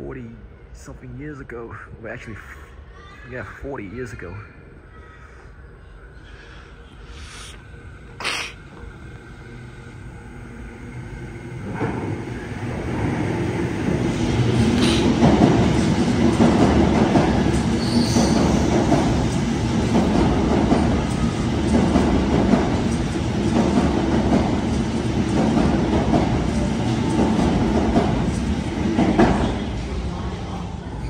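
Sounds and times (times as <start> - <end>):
train wheel clatter: 13.9 - 29.7
high wheel squeal: 17.8 - 18.6.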